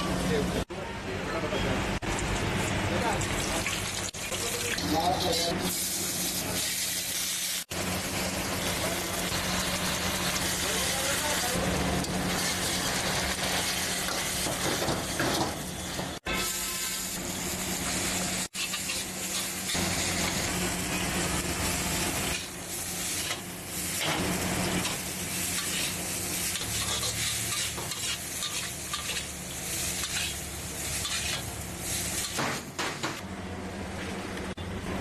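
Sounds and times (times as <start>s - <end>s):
food sizzling on a griddle: 3.0s - 32.7s
metal spatula scraping a pan: 24.8s - 31.5s.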